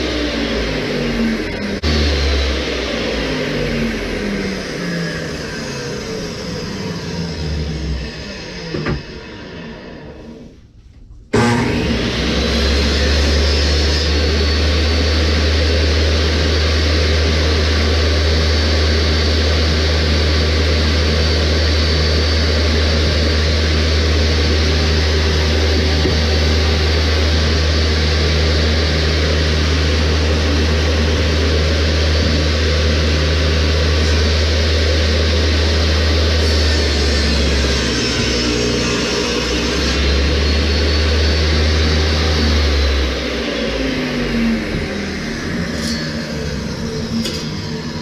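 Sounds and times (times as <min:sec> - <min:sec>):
power tool motor running: 0:11.3 - 0:48.0.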